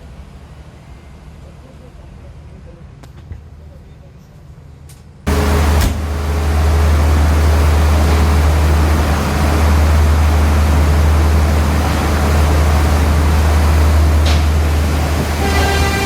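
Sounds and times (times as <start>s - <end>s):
passenger train rushing roar: 5.3s - 16.0s.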